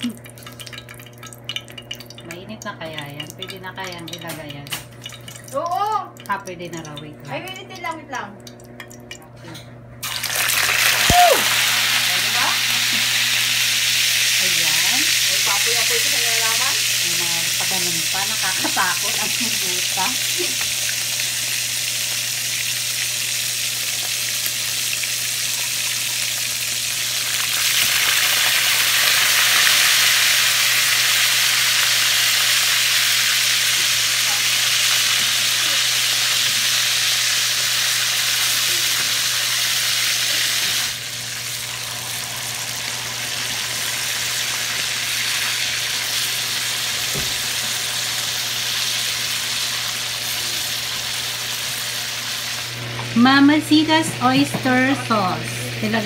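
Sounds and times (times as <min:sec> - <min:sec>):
meat sizzling in a pan: 0:10.0 - 0:56.0.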